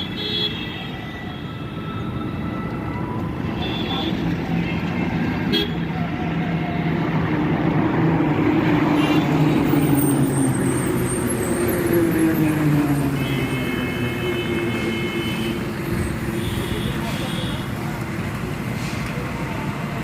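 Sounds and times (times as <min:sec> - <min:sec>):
heavy truck engine: 0:04.1 - 0:20.0.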